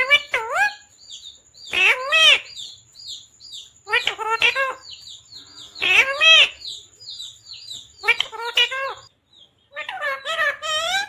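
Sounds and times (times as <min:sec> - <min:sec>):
parrot chirping: 0:00.0 - 0:11.0
parrot wavering calls: 0:08.0 - 0:09.1.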